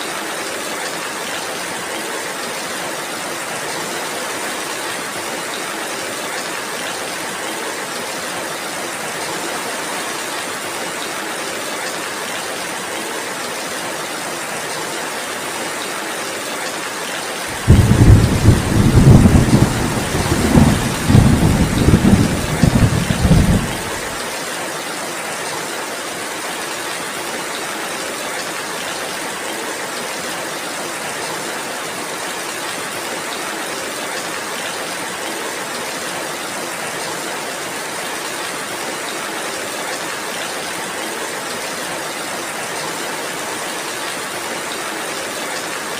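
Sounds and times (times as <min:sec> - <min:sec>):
heavy rain: 0:00.0 - 0:45.9
thunder rumbling: 0:17.5 - 0:24.2.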